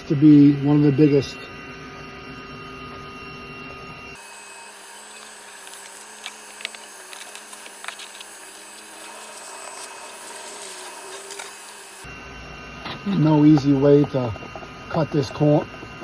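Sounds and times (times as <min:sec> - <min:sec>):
honeybees humming: 0:04.2 - 0:12.1.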